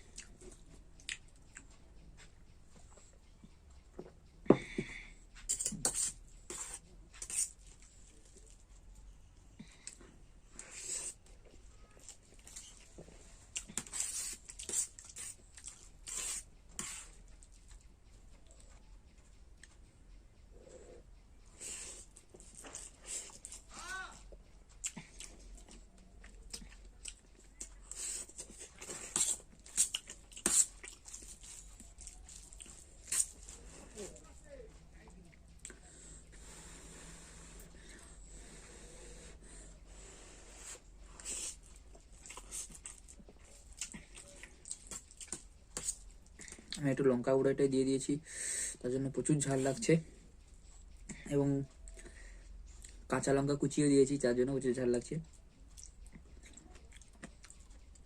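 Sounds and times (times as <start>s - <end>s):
person chewing noodles: 0.0s - 4.8s, 9.6s - 46.8s, 55.2s - 58.0s.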